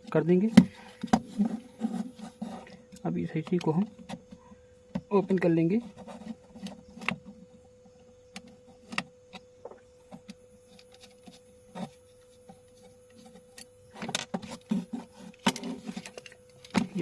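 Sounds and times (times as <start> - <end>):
faint steady hum: 0.0 - 17.0
small parts clicking and tapping: 7.9 - 17.0.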